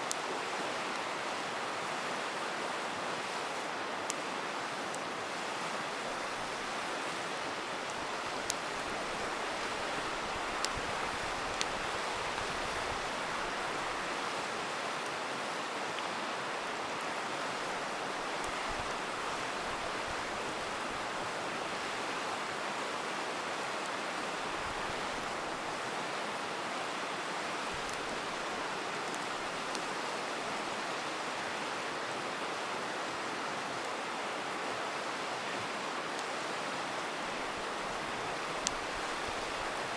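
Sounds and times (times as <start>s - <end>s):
campfire pops and crackles: 0.0s - 1.1s, 7.3s - 13.9s, 18.1s - 21.1s, 27.6s - 30.1s, 37.2s - 39.8s
river rushing: 0.0s - 39.9s.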